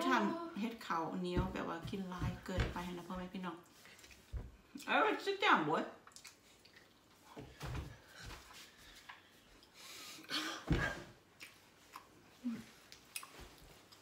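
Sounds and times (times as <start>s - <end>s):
chewing: 6.0s - 7.3s, 11.4s - 14.0s.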